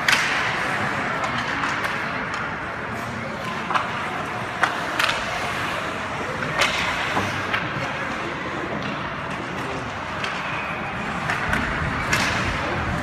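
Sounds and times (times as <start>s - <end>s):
crowd and hall noise: 0.0s - 13.0s.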